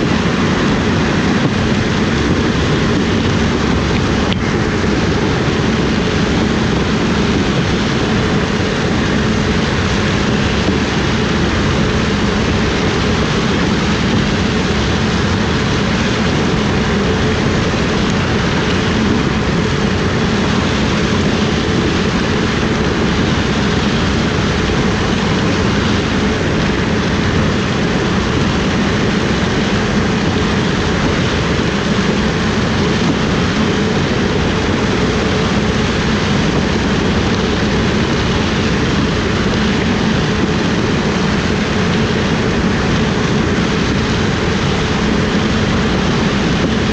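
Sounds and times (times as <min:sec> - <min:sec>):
harvest machinery engine running: 0:00.0 - 0:46.9.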